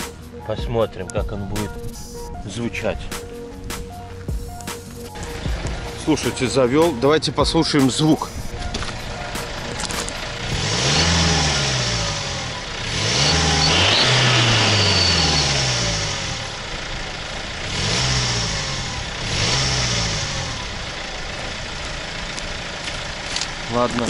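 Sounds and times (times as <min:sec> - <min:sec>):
diesel engine revving: 0:01.1 - 0:24.0
faint high whistle: 0:13.6 - 0:15.5.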